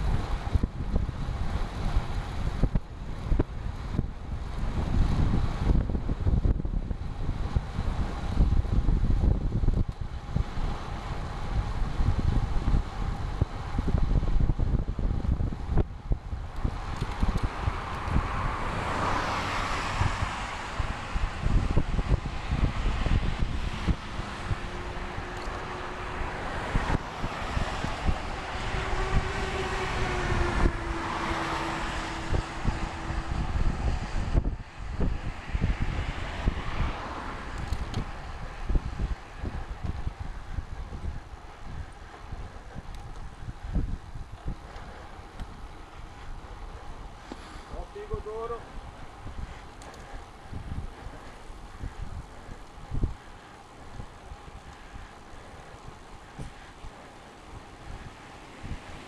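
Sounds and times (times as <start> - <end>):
wind buffeting microphone: 0.0 - 59.0
motor vehicle passing: 15.0 - 59.0.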